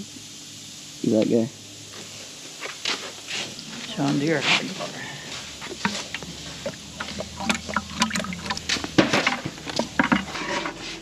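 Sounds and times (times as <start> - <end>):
liquid splashing: 5.6 - 10.5.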